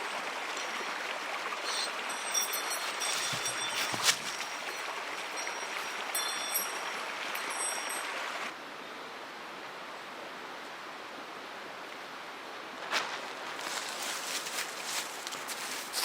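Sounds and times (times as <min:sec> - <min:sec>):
stream flowing over rocks: 0:00.0 - 0:08.6.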